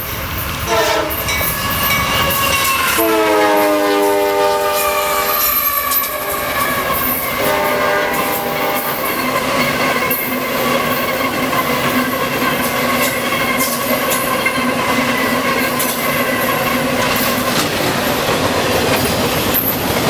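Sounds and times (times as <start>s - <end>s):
freight train rolling past: 0.0s - 20.0s
rail clatter: 0.0s - 20.0s
high wheel squeals: 4.7s - 18.2s.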